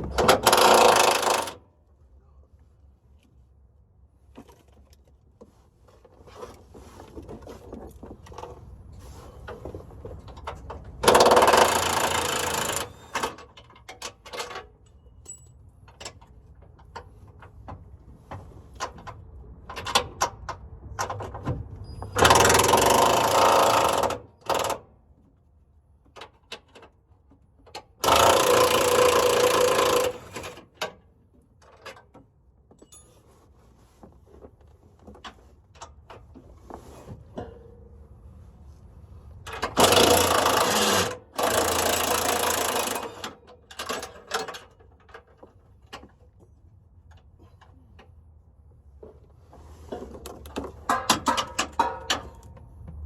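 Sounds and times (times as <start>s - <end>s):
tools clinking: 13.0s - 16.4s, 32.7s - 33.3s.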